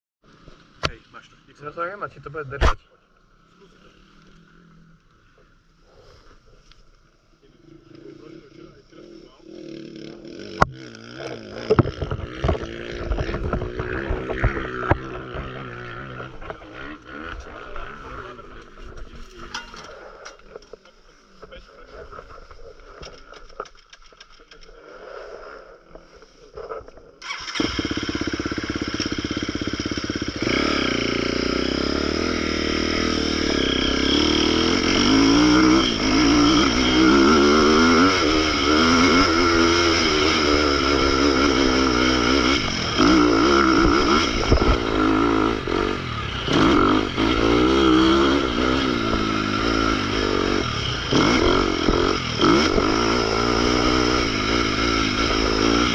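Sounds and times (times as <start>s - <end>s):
motocross bike engine revving: 7.4s - 20.7s, 27.2s - 55.9s.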